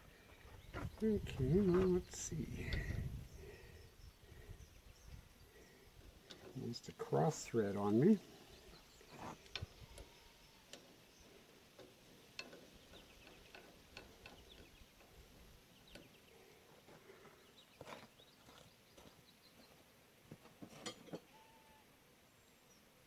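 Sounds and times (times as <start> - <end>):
small metal clicks: 11.8 - 15.3.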